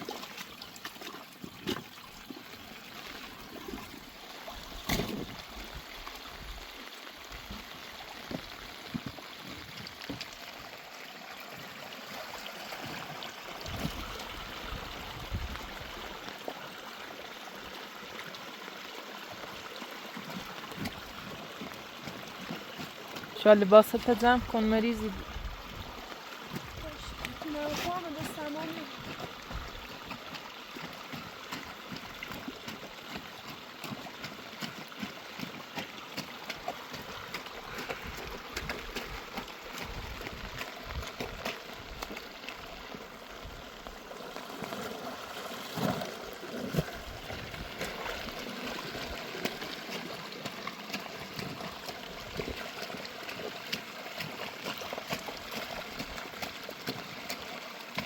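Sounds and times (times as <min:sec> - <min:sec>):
running water: 0:00.0 - 0:58.0
drops and splashes: 0:03.2 - 0:06.1.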